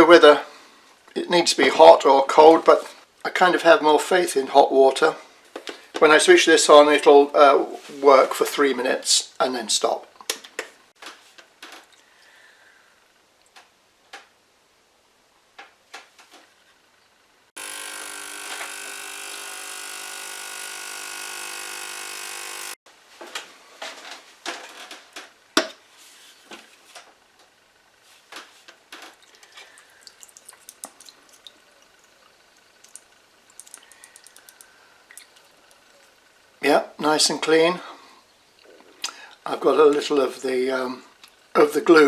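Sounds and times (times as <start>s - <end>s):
ultrasonic cleaner buzzing hum: 17.6s - 22.8s
small parts clicking and knocking: 28.7s - 35.9s.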